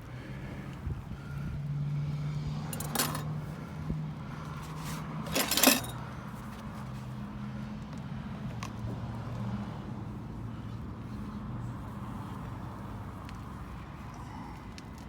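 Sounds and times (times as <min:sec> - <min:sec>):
sharp metallic clinks: 0:05.3 - 0:06.0.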